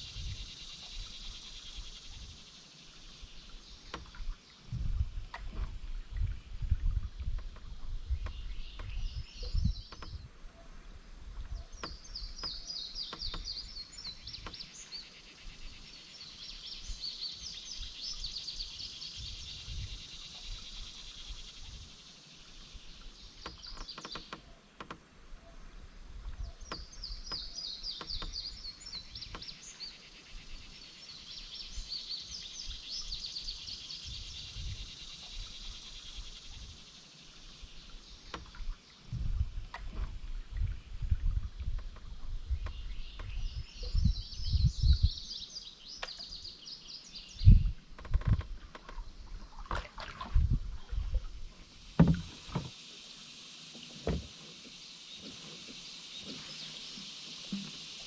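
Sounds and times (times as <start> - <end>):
songbird singing: 0.0 - 58.0
faint knocks: 52.0 - 52.8, 53.7 - 56.4.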